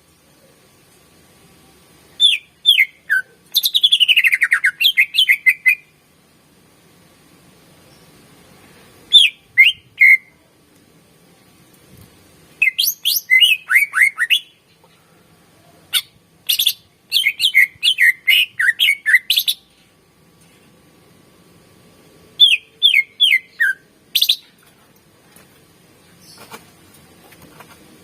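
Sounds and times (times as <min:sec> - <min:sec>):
bird singing whistled notes: 0:02.2 - 0:05.9, 0:09.1 - 0:10.3, 0:12.6 - 0:14.6, 0:16.0 - 0:19.7, 0:22.4 - 0:24.5.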